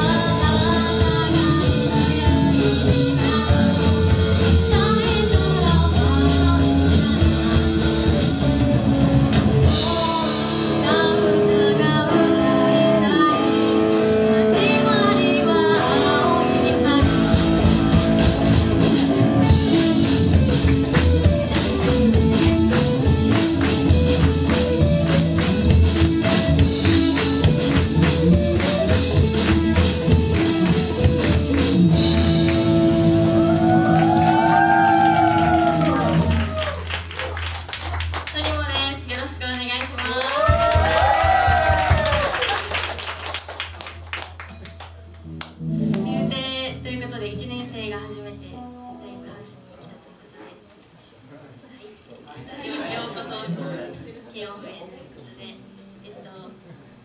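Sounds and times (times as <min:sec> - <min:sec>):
person singing: 0:00.0 - 0:08.6, 0:09.7 - 0:18.5
drums: 0:00.0 - 0:48.2
bass guitar: 0:00.0 - 0:49.2
guitar: 0:00.0 - 0:51.1.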